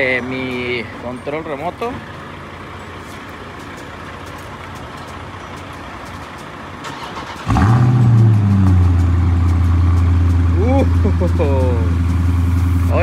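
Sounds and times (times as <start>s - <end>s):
car engine idling loudly: 0.0s - 13.0s
car engine cranking and starting: 3.5s - 13.0s.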